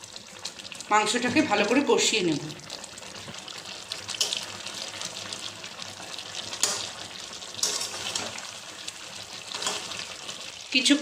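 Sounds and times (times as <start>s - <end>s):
chicken sizzling in a pan: 0.0s - 11.0s
spatula scraping a pan: 6.4s - 8.6s, 9.3s - 10.4s.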